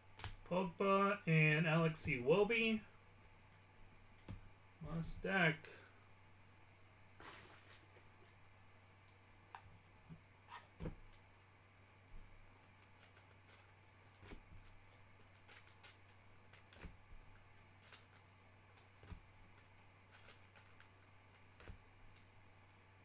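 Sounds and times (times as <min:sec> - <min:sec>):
low steady hum: 0:00.0 - 0:23.0
trading cards being handled: 0:12.5 - 0:22.3.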